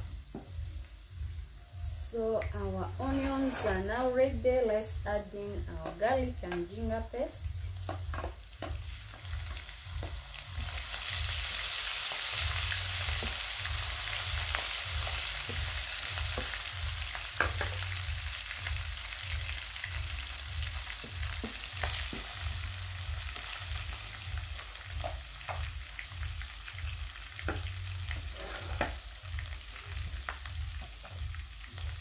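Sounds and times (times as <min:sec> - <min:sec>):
food sizzling in hot oil: 0:00.0 - 0:32.0
wooden spoon knocking pan: 0:05.8 - 0:06.7, 0:07.8 - 0:08.8, 0:17.4 - 0:17.8.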